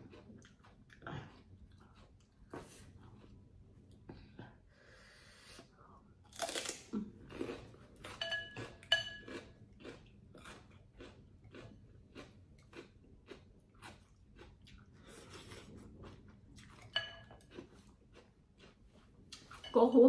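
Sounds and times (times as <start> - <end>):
person chewing food: 0.0 - 4.7, 5.6 - 19.8
utensil clinking against bowl: 8.2 - 9.3, 16.9 - 17.4.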